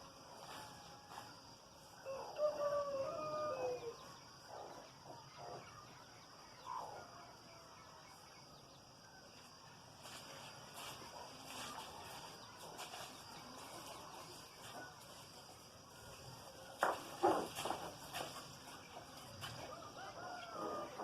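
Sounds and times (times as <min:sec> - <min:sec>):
rooster crowing: 0:00.5 - 0:04.0, 0:19.6 - 0:21.0.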